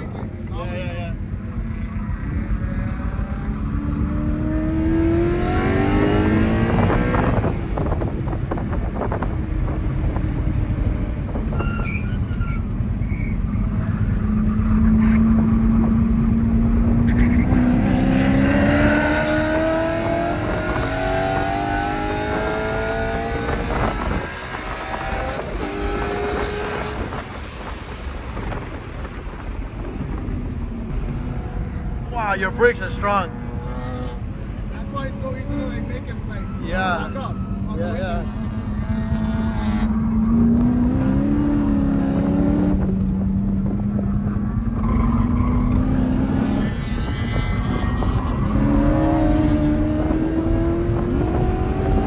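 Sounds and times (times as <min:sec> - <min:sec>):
car engine revving: 0:00.0 - 0:52.0
tyre and road noise: 0:00.0 - 0:52.0
brief high squeals: 0:11.5 - 0:13.6.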